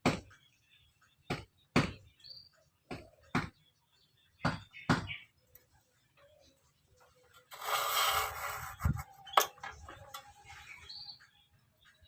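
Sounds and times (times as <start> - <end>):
hand tool strokes: 7.4 - 10.6.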